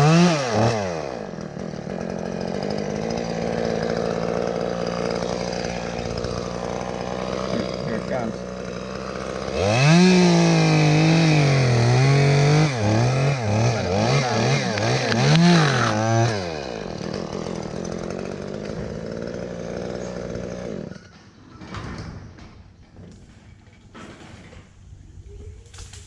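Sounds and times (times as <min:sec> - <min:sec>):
chainsaw cutting wood: 0:00.0 - 0:21.3.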